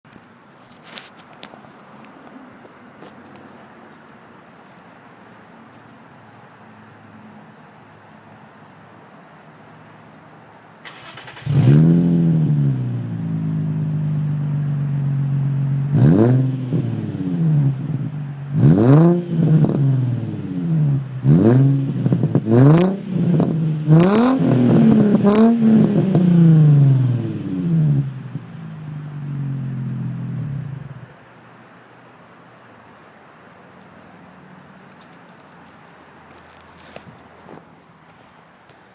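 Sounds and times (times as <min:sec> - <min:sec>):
car engine throttle blips: 0:10.9 - 0:31.2.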